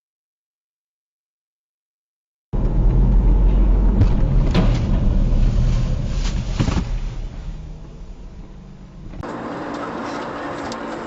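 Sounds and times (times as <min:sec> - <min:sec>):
moving car rumble: 0:02.6 - 0:11.0.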